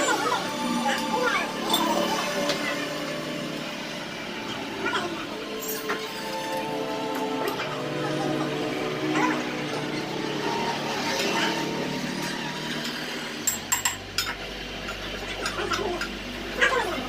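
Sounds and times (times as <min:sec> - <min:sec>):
steady layered tones: 0:00.0 - 0:13.5.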